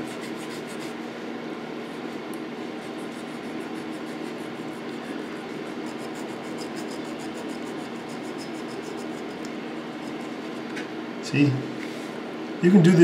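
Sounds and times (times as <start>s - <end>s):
electric fan humming: 0.0s - 13.0s
needle file rasping on metal: 2.9s - 10.6s.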